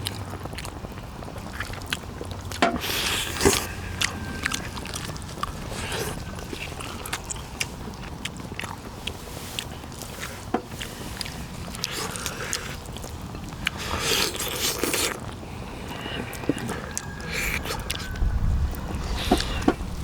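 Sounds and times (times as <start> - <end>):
chewing and biting meat: 0.0 - 20.0.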